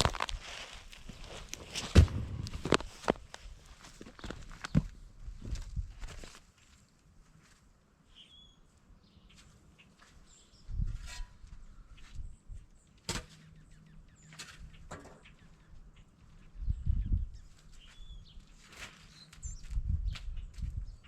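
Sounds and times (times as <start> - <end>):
footsteps crunching in snow: 0.0 - 4.7.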